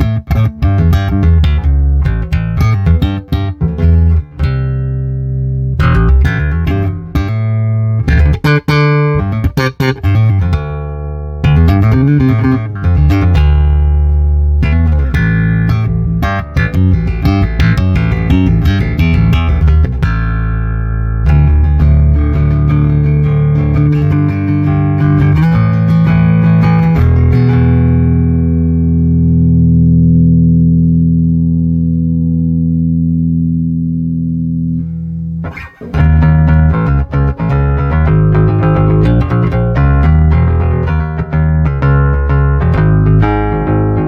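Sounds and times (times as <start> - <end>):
electric bass plucked notes: 0.0 - 44.0.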